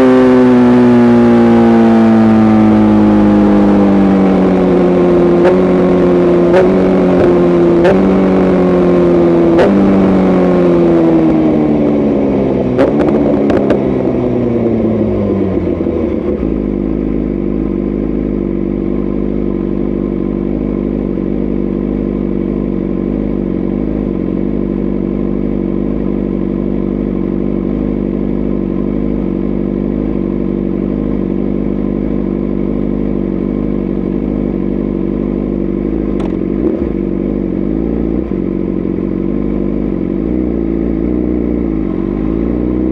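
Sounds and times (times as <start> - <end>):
motorcycle engine downshifting: 0.0 - 42.9
exhaust cracks: 36.0 - 37.0.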